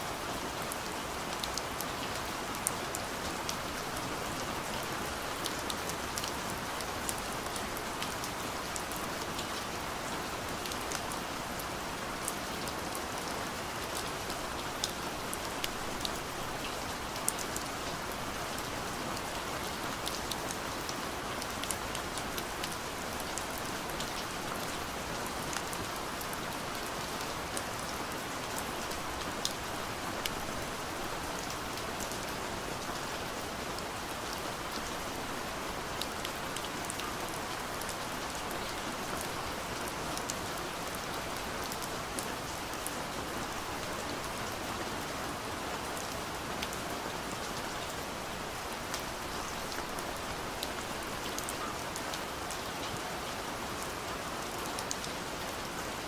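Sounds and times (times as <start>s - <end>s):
rain pattering on a window: 0.1s - 56.0s.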